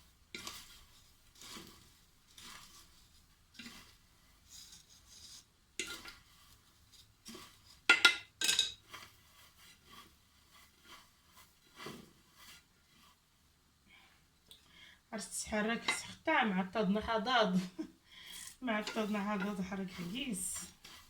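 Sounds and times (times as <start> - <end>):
dry pasta rustling: 0.0 - 13.6, 15.2 - 21.0
metal pot clinking: 5.8 - 6.2, 7.8 - 8.9.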